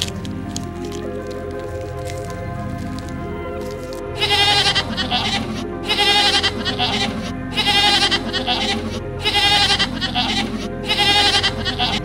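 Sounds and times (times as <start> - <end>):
background music: 0.0 - 12.0
animal bleating: 4.2 - 12.0.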